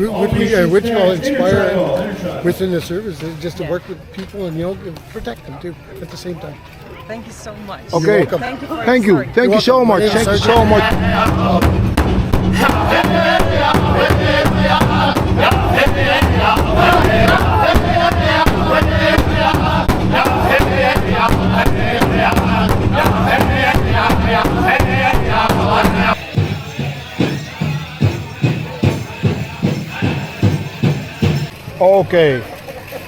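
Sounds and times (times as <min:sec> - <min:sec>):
singers chanting in high voices: 0:10.1 - 0:11.8, 0:12.5 - 0:31.5
large hand drum beating: 0:10.2 - 0:31.5.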